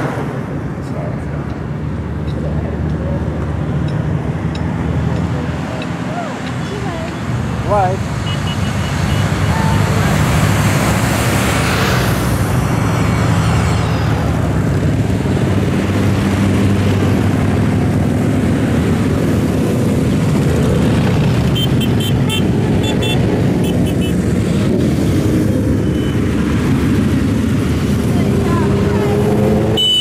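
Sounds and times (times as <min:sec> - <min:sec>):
traffic rumble: 0:00.0 - 0:30.0
short high-pitched beeps: 0:25.8 - 0:26.2.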